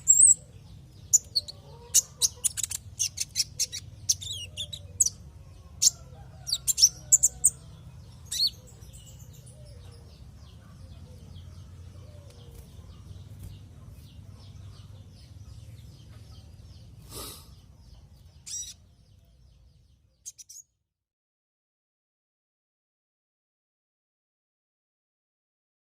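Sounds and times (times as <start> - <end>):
bird twittering: 0.0 - 5.2, 18.4 - 18.8, 20.2 - 20.6
bird chirping: 0.0 - 20.8.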